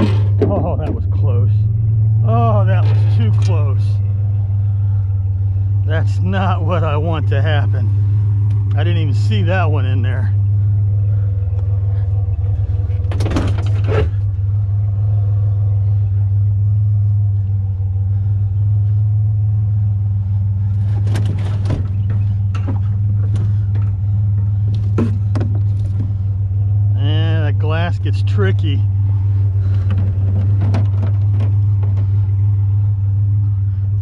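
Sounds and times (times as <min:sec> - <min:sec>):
knocks and rattles of parts handled: 0:00.0 - 0:01.0, 0:20.8 - 0:26.2, 0:29.6 - 0:32.4
vehicle engine idling: 0:00.0 - 0:34.0.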